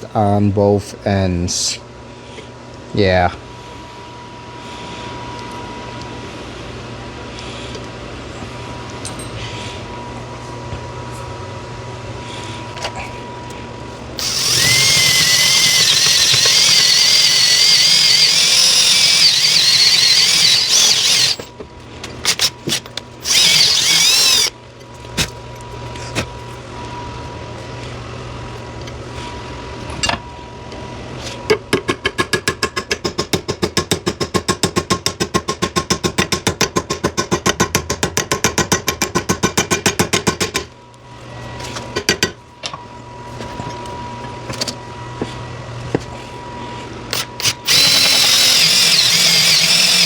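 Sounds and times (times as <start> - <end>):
electric drill whining: 14.2 - 21.5, 22.2 - 24.5, 47.1 - 50.0.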